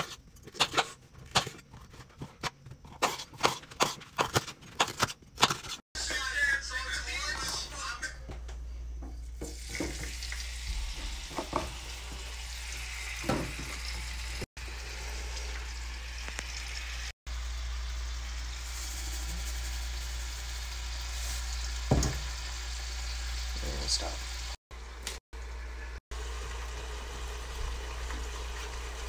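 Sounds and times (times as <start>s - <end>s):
vegetables sizzling in a pan: 9.4s - 25.0s, 26.2s - 29.0s
pieces knocking in a pan: 21.9s - 22.3s.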